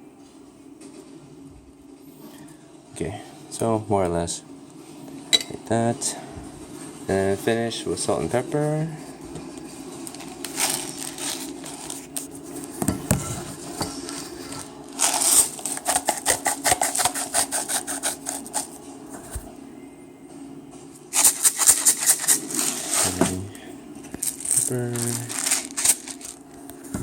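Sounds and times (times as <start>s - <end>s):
salt shaker rattling: 15.0s - 18.7s, 21.2s - 23.2s, 24.2s - 26.4s.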